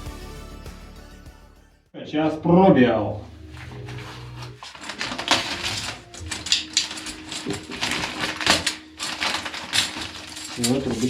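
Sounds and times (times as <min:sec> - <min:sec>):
packaging crackling and rattling: 0:03.4 - 0:11.0
small hard fittings clinking: 0:03.6 - 0:11.0.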